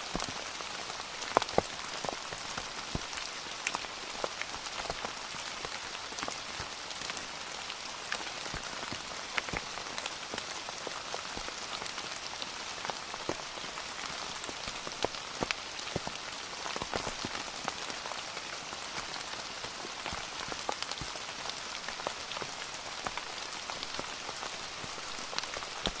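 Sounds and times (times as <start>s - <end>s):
rain on a hard surface: 0.0s - 26.0s
raindrops ticking and splatting: 0.0s - 26.0s.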